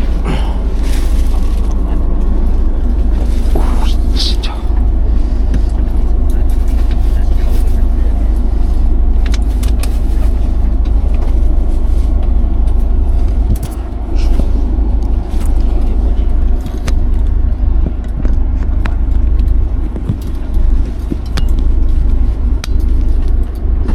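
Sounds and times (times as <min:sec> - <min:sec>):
train carriage rumble: 0:00.0 - 0:23.9.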